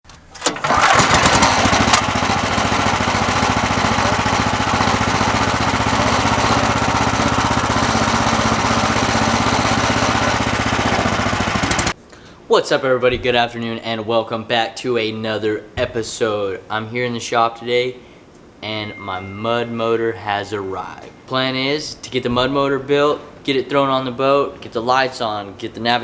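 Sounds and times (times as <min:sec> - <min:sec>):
small gasoline engine running: 0:00.2 - 0:12.0.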